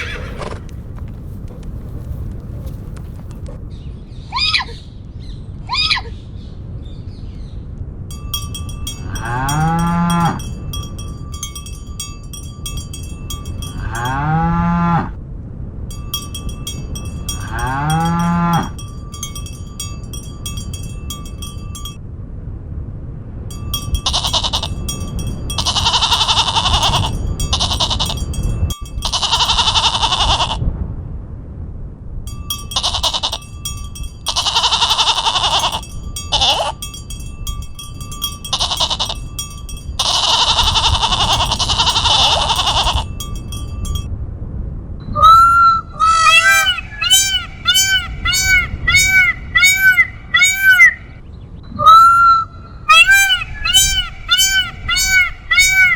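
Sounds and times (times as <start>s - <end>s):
livestock calling: 0.0s - 3.6s, 8.9s - 10.5s, 13.6s - 15.1s, 16.7s - 18.8s, 24.0s - 24.9s, 25.6s - 28.2s, 29.0s - 30.6s, 34.3s - 36.8s, 38.2s - 39.2s, 40.0s - 43.1s, 45.2s - 51.2s, 51.8s - 55.9s
bells clanking: 8.1s - 15.0s, 15.9s - 22.0s, 23.5s - 30.1s, 32.3s - 44.1s, 46.2s - 51.0s, 52.9s - 55.9s
harsh bleats: 9.0s - 10.4s, 17.3s - 18.8s, 25.6s - 28.2s, 29.0s - 30.6s, 34.3s - 36.8s, 40.0s - 43.1s, 46.0s - 51.0s, 52.9s - 55.9s.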